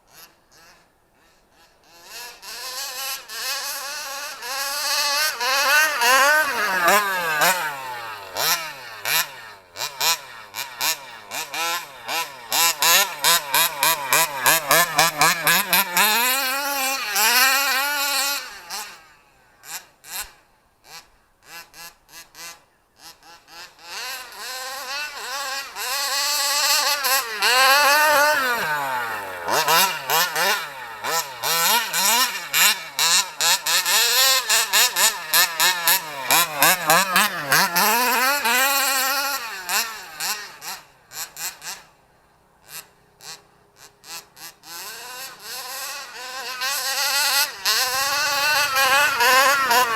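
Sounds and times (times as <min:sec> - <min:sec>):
small two-stroke engine revving: 0:00.0 - 0:49.9.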